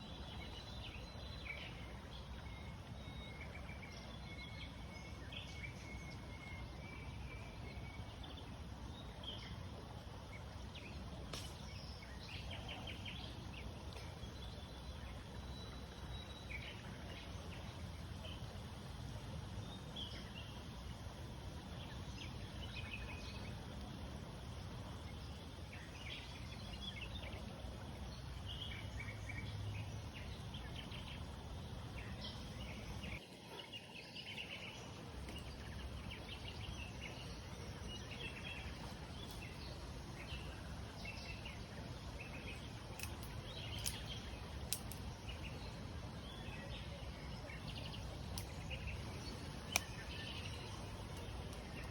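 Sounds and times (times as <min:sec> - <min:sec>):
small birds chirping: 0:19.7 - 0:51.9.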